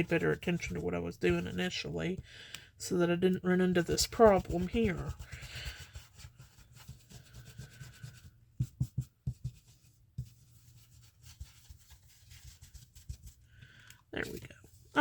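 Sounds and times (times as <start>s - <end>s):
tool rubbing on paper: 3.9s - 13.5s.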